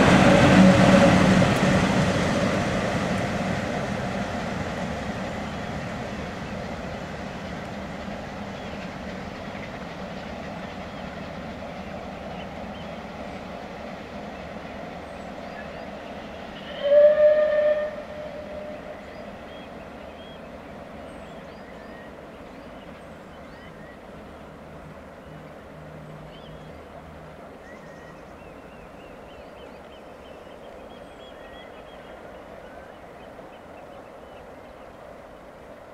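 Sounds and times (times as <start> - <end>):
train rumbling: 0.0 - 35.9
birds chirping: 18.1 - 35.5.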